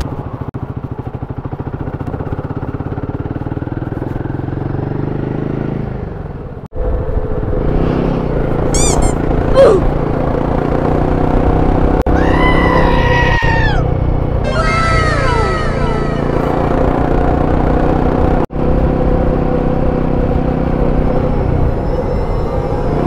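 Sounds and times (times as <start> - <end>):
motorcycle engine running: 0.0 - 12.8, 13.4 - 21.9
short rising squeal: 8.7 - 9.8, 14.4 - 17.2
high chirps: 8.8 - 9.2.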